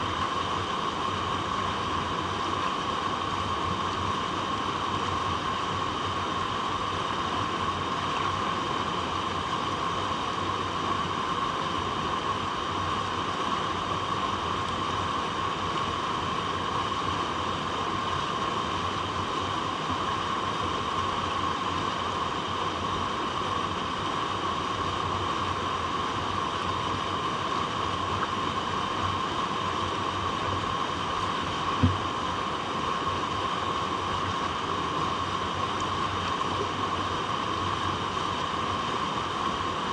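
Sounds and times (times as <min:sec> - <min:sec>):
water rushing: 0:00.0 - 0:39.9
low thump: 0:31.8 - 0:32.0.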